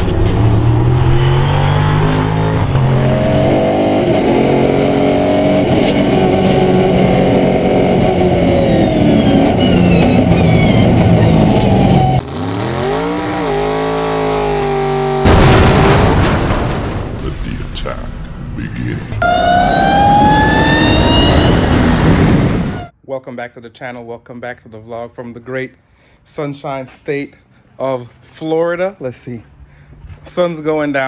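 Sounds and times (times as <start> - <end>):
car engines revving: 0.0 - 17.2.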